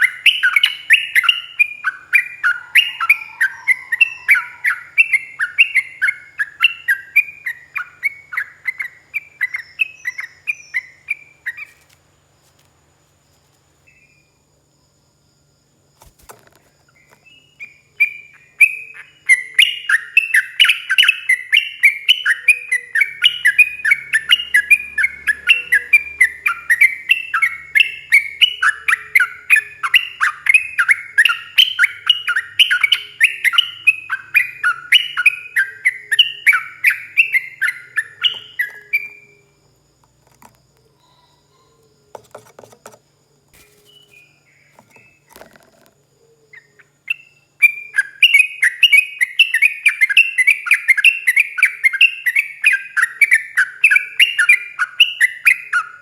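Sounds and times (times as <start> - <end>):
bird singing falling whistled notes: 0.0 - 11.7, 16.0 - 39.6, 46.5 - 56.0.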